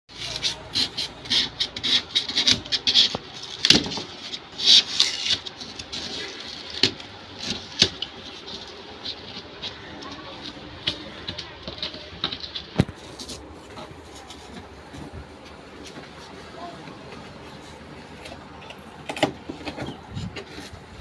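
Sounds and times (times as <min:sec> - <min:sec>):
scraping and rubbing strokes: 0:00.1 - 0:15.1.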